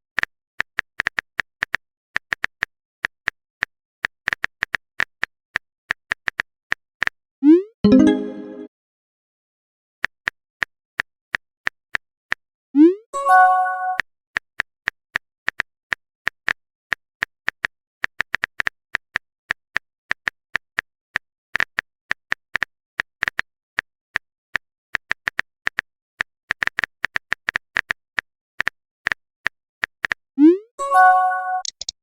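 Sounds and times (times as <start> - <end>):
chime-like message tone: 7.9 - 8.7, 13.2 - 14.0, 30.8 - 31.7
phone keyboard typing clicks: 31.6 - 32.0.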